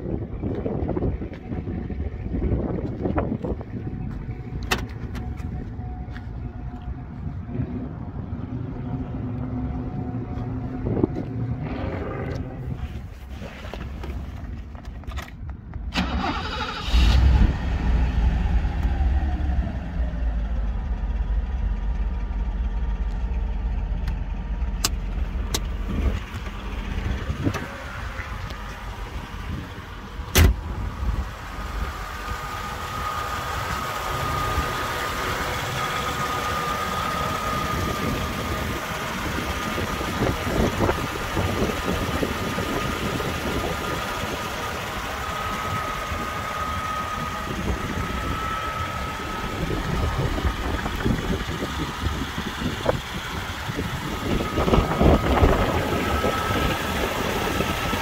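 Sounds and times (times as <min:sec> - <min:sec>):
car engine cranking and idling: 0:00.0 - 0:58.0
steady high whine: 0:17.4 - 0:58.0.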